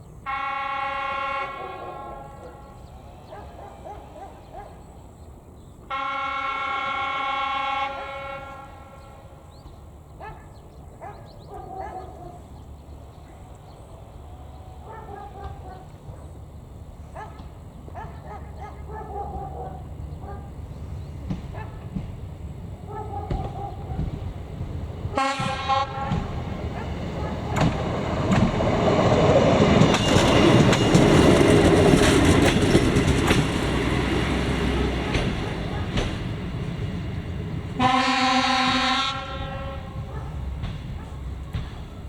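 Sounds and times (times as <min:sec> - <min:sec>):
train engine and wheel rumble: 0:00.0 - 0:42.0
train horn blast: 0:00.2 - 0:05.0, 0:05.8 - 0:09.5, 0:25.0 - 0:28.5, 0:37.7 - 0:41.4.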